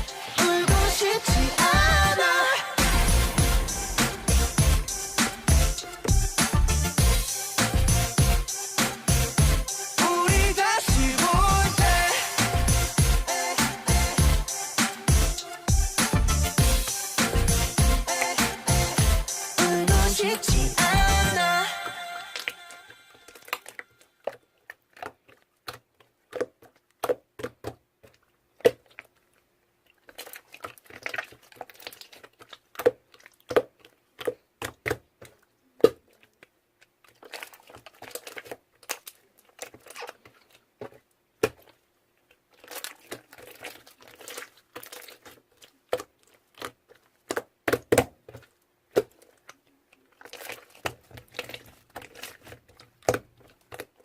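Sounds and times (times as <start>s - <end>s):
rustling and crinkling: 23.3s - 54.0s.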